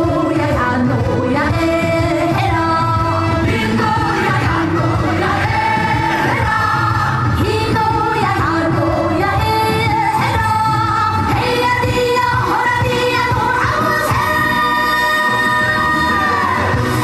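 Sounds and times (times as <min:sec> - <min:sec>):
amplified band accompaniment: 0:00.0 - 0:17.0
woman singing: 0:00.0 - 0:17.0.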